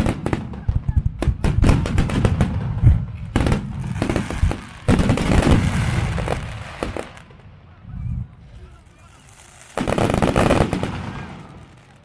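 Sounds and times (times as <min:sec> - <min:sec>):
hissing crackle of fireworks: 0:00.0 - 0:07.6, 0:08.6 - 0:12.0
fireworks bangs: 0:00.0 - 0:12.0.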